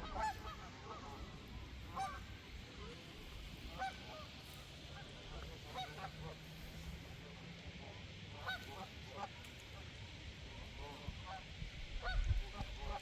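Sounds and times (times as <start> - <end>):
ducks honking: 0.0 - 6.9, 8.4 - 9.4
flock of ducks calling: 0.0 - 13.0.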